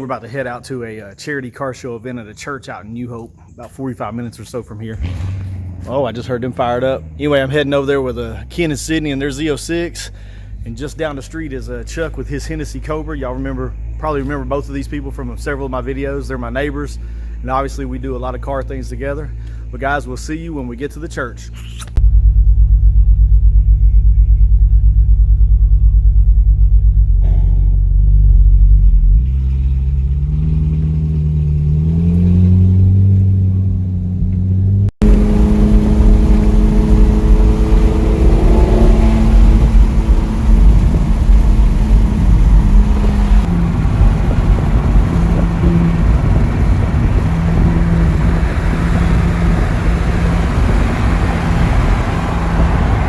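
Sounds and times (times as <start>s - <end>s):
road and wind noise: 2.1s - 23.5s, 26.2s - 53.0s
car engine idling and revving: 4.5s - 53.0s
car driving at speed: 5.0s - 11.6s, 21.8s - 53.0s.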